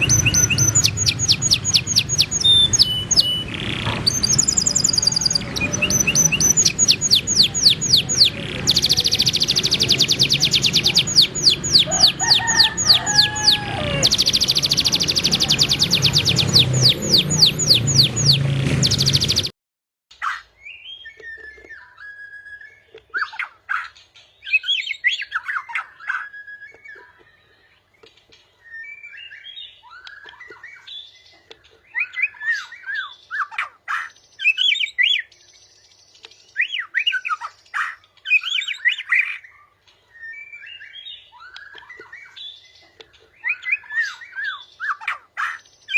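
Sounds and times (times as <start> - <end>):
bird whistling phrases: 0.0 - 3.5, 31.9 - 35.3, 43.4 - 45.9
songbird trilling: 0.0 - 19.4.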